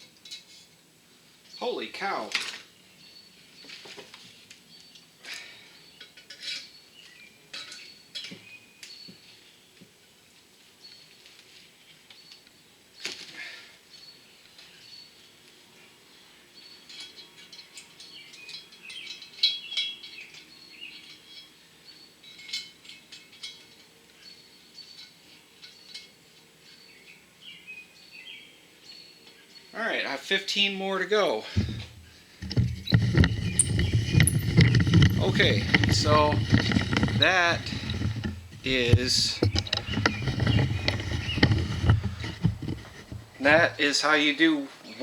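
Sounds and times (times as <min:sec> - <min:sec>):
birds chirping faintly: 0:31.5 - 0:45.0
small metallic clicks and taps: 0:31.6 - 0:43.6
metal parts clinking: 0:31.6 - 0:43.7.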